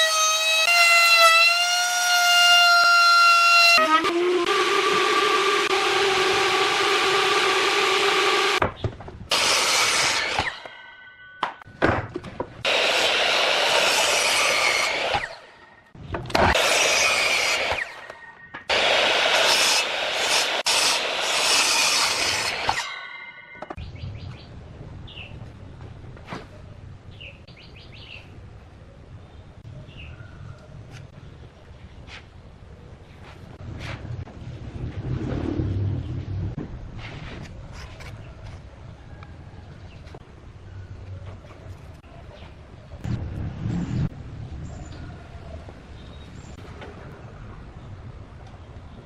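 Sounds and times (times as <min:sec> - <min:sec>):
power tool motor running: 0:04.0 - 0:08.6, 0:12.7 - 0:15.4.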